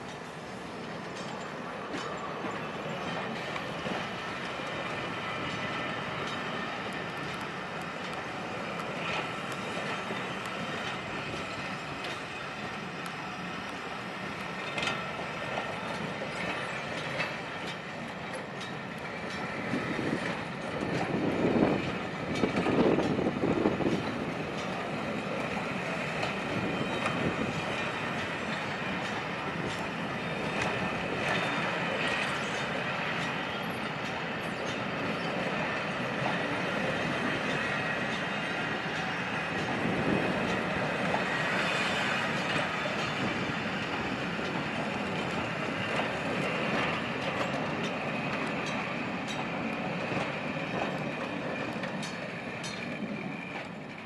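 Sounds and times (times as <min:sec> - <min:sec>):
train wheels clicking over rail joints: 0:00.0 - 0:54.0.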